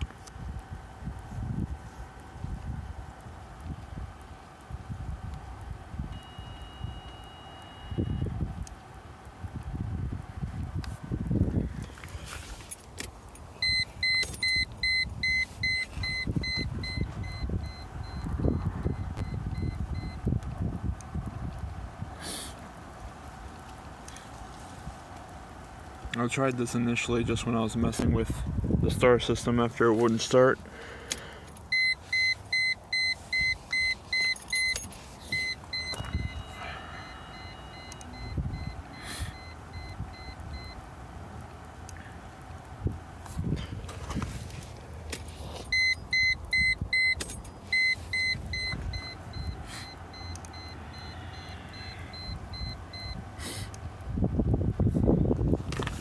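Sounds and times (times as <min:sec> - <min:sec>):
rapid electronic beeping: 0:31.7 - 0:40.8, 0:45.7 - 0:53.2.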